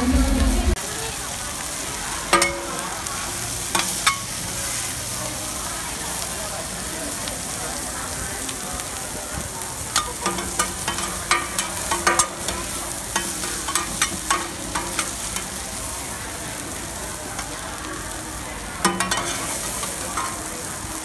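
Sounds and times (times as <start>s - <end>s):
batter sizzling on griddle: 0.7s - 21.0s
metal spatula clicking and scraping: 9.9s - 15.6s, 18.8s - 20.4s.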